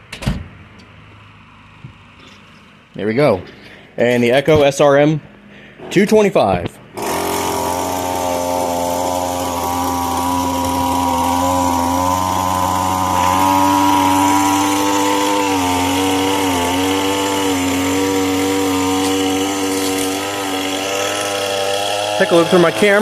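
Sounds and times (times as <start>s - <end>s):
string trimmer running: 7.0s - 23.0s.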